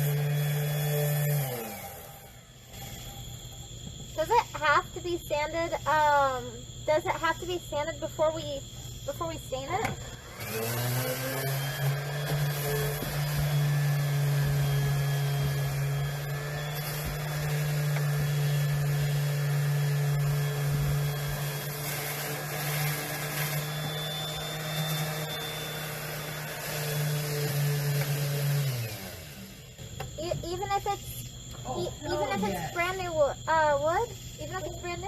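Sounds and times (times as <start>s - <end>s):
electric sander on wood: 0.0s - 4.7s, 9.7s - 30.1s.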